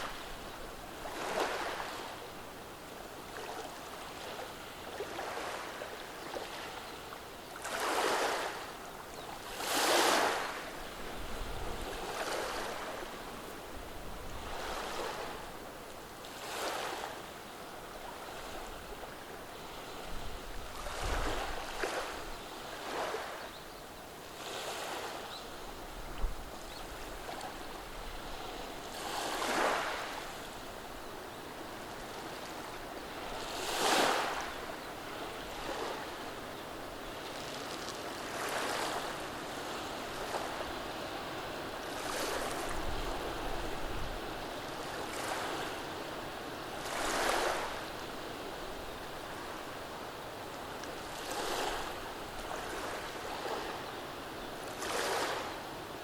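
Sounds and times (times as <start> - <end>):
waves washing over pebbles: 28.6 - 30.4, 46.8 - 48.0.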